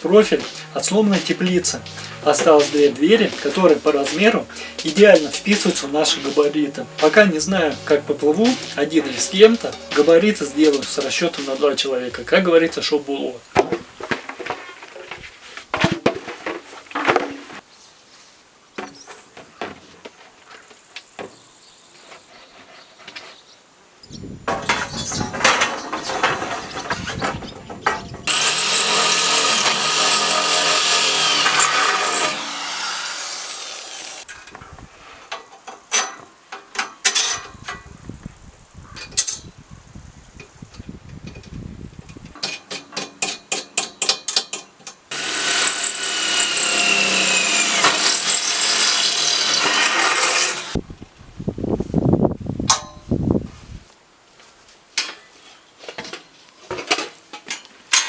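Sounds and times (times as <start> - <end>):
saw rasping: 0.2 - 11.8, 28.3 - 34.3, 45.1 - 50.8
power tool running: 28.3 - 34.2, 45.1 - 50.8
clicks and knocks on metal: 42.3 - 45.0.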